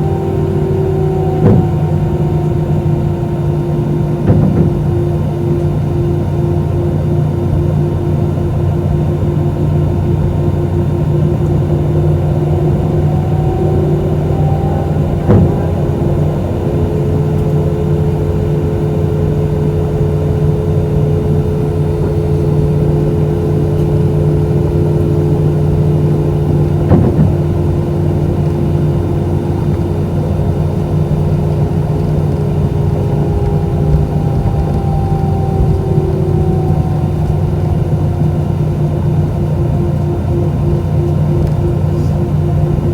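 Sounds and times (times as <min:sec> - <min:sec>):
jet engines droning in cabin: 0:00.0 - 0:42.9
brief thumps: 0:01.3 - 0:02.0, 0:04.2 - 0:04.9, 0:15.2 - 0:16.0, 0:26.8 - 0:27.6.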